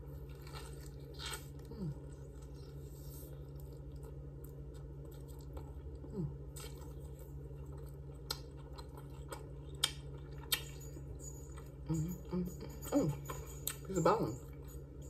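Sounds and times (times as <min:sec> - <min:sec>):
person chewing: 0:00.0 - 0:12.4
low hum: 0:00.0 - 0:15.0
lip smacks: 0:09.7 - 0:10.7.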